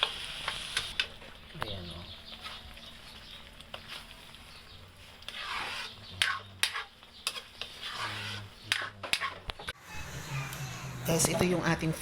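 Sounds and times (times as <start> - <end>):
spatula scraping pan: 5.0 - 10.8.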